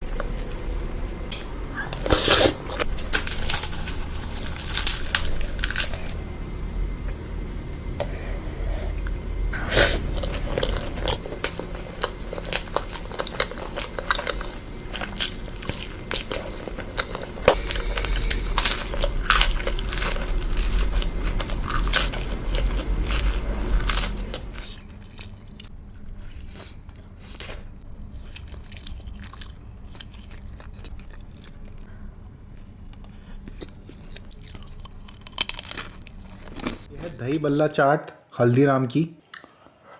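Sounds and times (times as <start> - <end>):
person chewing crunchy food: 0.0 - 6.2, 8.0 - 37.2.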